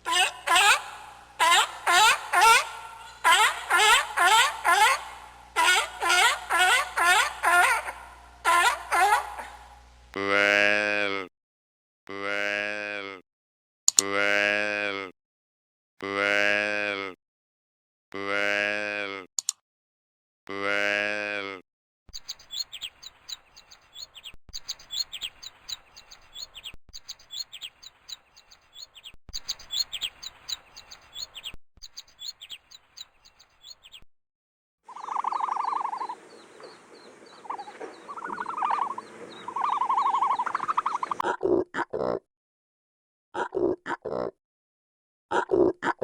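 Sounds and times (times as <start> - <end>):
lower rounder animal calls: 0.0 - 9.8, 34.9 - 41.2
rapid high chirping: 22.2 - 34.0, 34.9 - 36.2.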